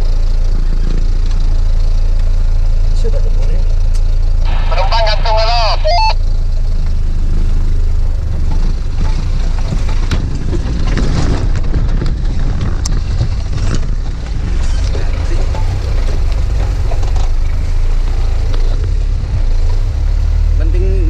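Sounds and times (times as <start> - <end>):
vehicle engine running: 0.0 - 21.0
knocks and rattles: 8.3 - 17.7.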